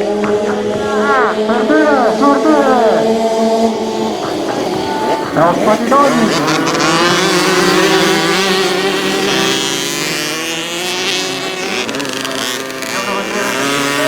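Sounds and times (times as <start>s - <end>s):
motocross bike engines: 0.0s - 14.0s.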